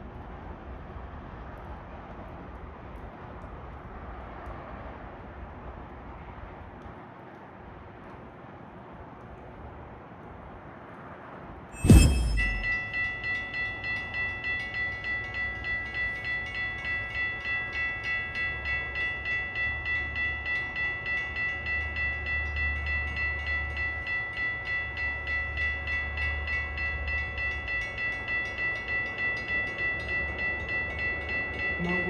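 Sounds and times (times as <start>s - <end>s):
low rumble: 11.8s - 12.8s
crossing bell ringing: 11.8s - 32.0s.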